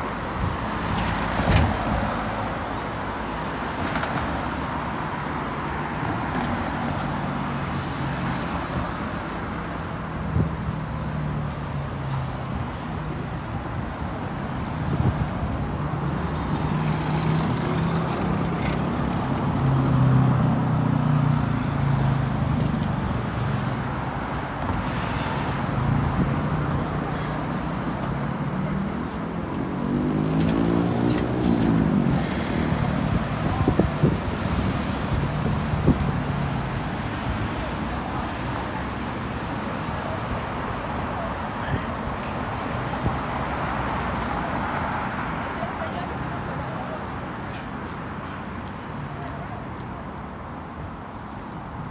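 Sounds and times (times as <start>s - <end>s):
vehicles passing by: 0.0s - 51.9s
vehicle accelerating: 25.4s - 36.8s.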